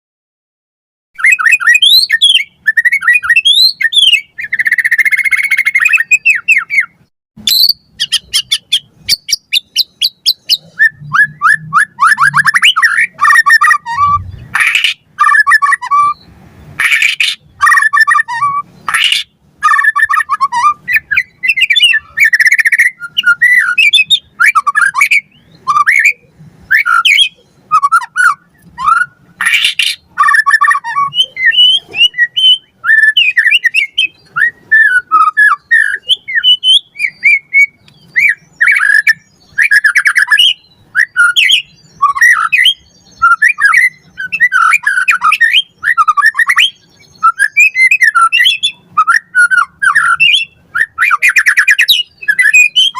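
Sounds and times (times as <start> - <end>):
bird singing whistled notes: 1.2 - 52.9
harsh rasping bird calls: 1.2 - 52.9.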